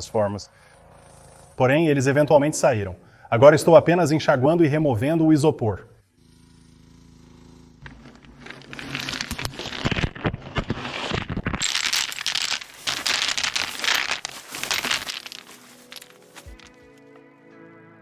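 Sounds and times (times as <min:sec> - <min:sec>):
foam pieces crackling and tearing: 0:07.8 - 0:16.9.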